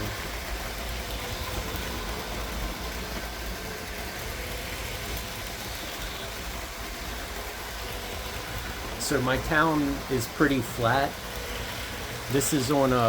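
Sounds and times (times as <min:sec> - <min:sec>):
toy train motor hum: 0:00.0 - 0:13.0.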